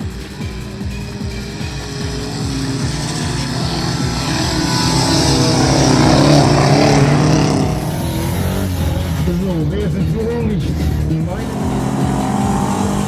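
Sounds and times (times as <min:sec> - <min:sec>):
racing car engines revving: 0:00.0 - 0:13.0.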